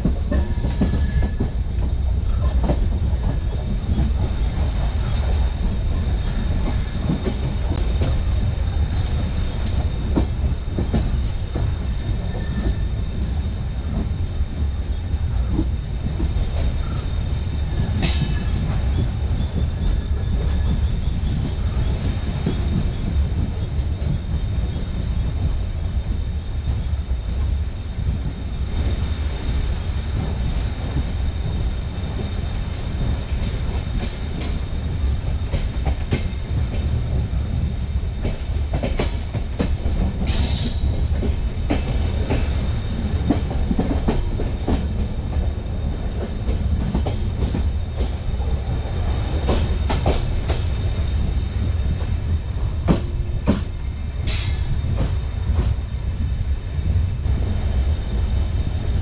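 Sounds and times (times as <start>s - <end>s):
train rumbling on rails: 0.0s - 59.0s
high-pitched wheel squeal: 40.3s - 41.2s.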